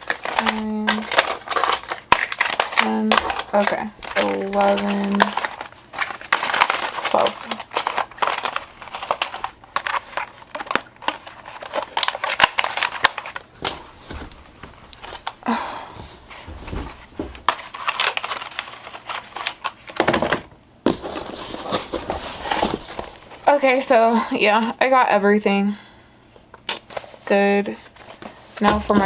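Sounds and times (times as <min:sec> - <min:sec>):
plastic packaging crinkling: 0:00.0 - 0:20.1, 0:20.9 - 0:23.8.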